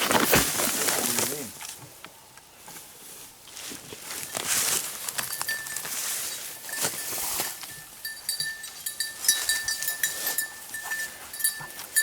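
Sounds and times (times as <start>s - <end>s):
brush rustling and crackling: 0.0s - 12.0s
dog collar bell jingling: 5.2s - 12.0s.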